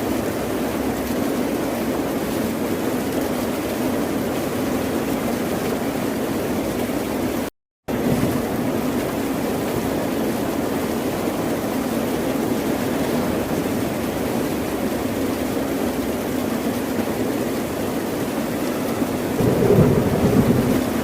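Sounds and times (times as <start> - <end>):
ocean surf washing: 16.3 - 21.0.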